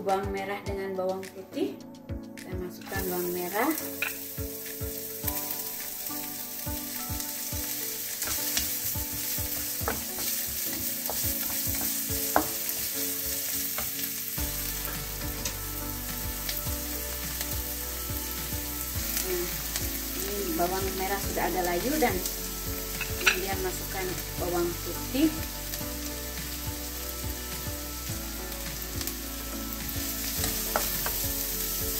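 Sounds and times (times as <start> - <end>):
shallots sizzling in oil: 2.8 - 31.9
spatula scraping and tapping pan: 4.0 - 4.3, 8.2 - 12.9, 30.4 - 31.2.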